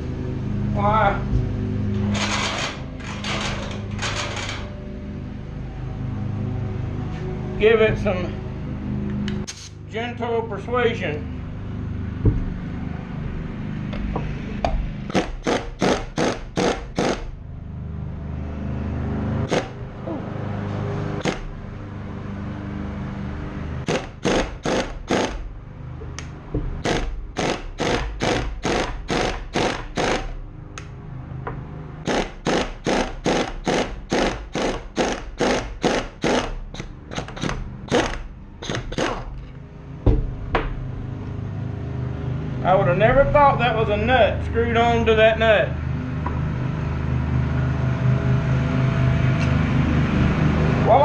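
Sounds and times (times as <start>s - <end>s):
steady low hum: 0.0s - 51.0s
hammer striking wrench: 14.2s - 17.3s, 23.8s - 25.4s, 26.0s - 30.3s, 31.5s - 39.4s.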